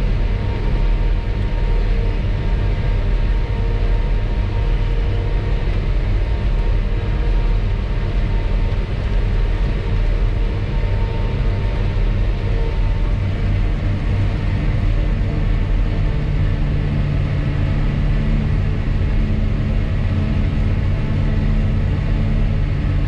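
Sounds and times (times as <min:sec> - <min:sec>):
low engine drone: 0:00.0 - 0:23.0.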